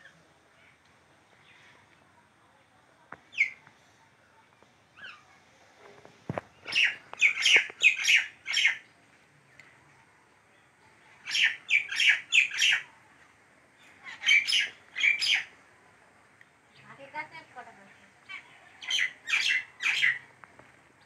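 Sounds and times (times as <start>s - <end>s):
small bird chirping: 3.2s - 3.6s, 6.4s - 12.9s, 13.8s - 15.5s, 17.9s - 20.4s.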